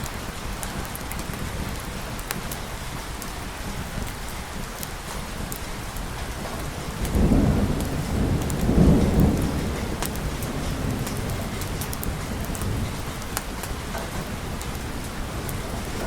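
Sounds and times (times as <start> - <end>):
steady rain falling: 0.0 - 16.0
thunder rumbling: 0.0 - 16.0.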